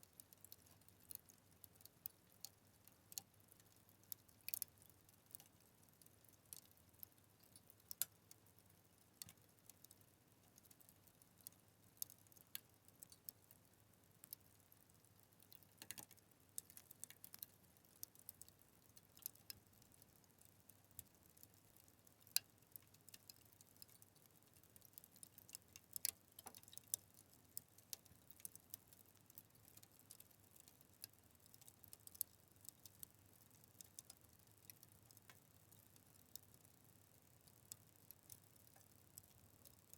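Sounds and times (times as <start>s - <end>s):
faint low hiss: 0.0s - 39.9s
fire crackling and popping: 15.4s - 20.1s, 20.9s - 39.3s.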